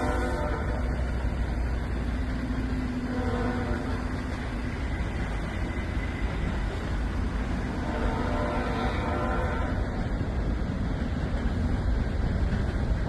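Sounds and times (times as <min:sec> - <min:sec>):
truck horn: 0:00.0 - 0:00.9, 0:03.1 - 0:03.9, 0:07.8 - 0:09.8.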